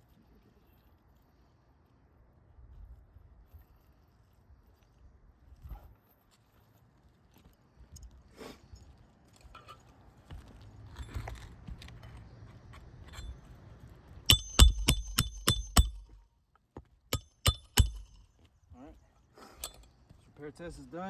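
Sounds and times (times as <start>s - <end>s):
hammer striking metal: 14.3s - 16.2s, 17.1s - 18.3s.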